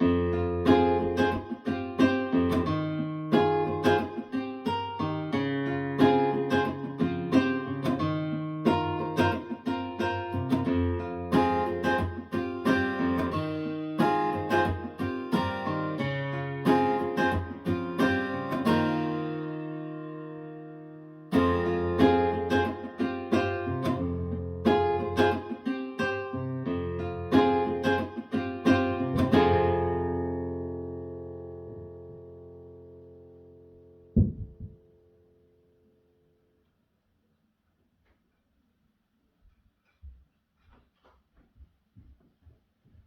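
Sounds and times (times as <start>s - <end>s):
acoustic guitar music over loudspeakers: 0.0s - 32.9s.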